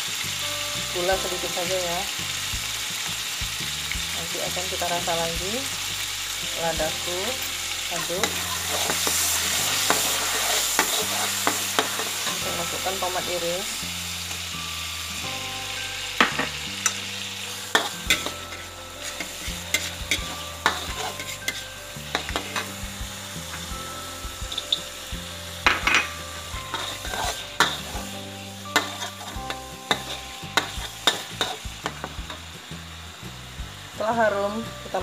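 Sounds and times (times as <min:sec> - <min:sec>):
food sizzling in hot oil: 0:00.0 - 0:35.0
metal spatula scraping a wok: 0:07.3 - 0:15.1, 0:16.1 - 0:23.8, 0:24.5 - 0:32.5.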